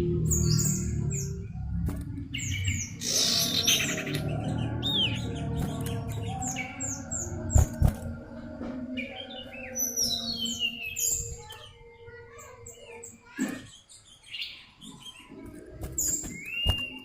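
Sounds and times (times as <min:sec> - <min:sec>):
bird chirping whistled notes: 0:16.2 - 0:17.0.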